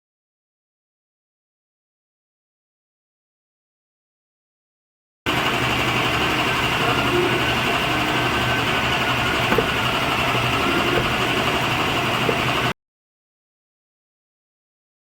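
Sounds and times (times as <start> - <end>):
woodworking machine motor humming: 5.3 - 12.7.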